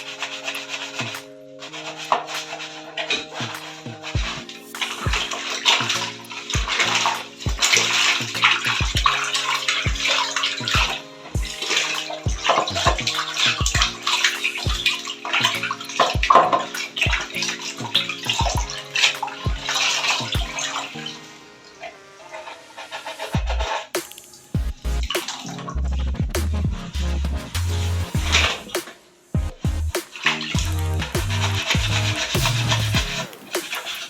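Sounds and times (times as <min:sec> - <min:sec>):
background music with beat: 0:00.0 - 0:21.6, 0:22.7 - 0:34.0
water splashing and running: 0:00.1 - 0:21.2, 0:30.1 - 0:34.0
scrubbing plastic: 0:30.1 - 0:34.0.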